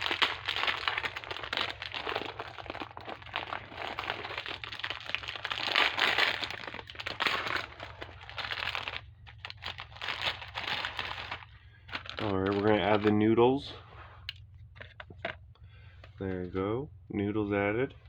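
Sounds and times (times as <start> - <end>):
plastic packet crinkling: 0.0 - 13.2
steady low hum: 0.0 - 18.0.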